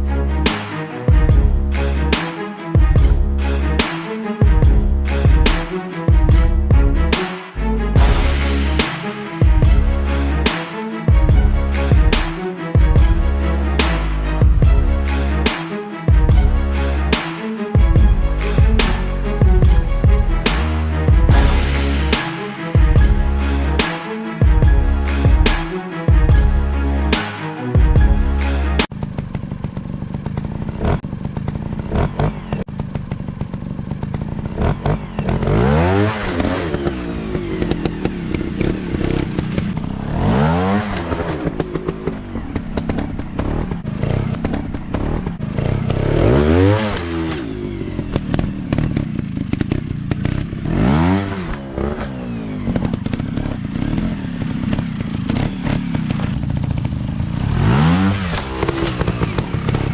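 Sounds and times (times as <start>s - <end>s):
dirt bike engine revving: 28.4s - 59.9s.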